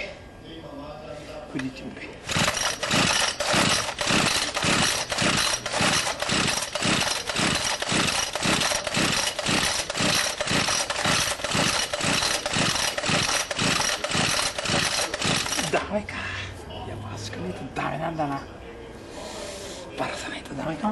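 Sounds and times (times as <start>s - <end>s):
engine being turned over: 2.3s - 15.9s.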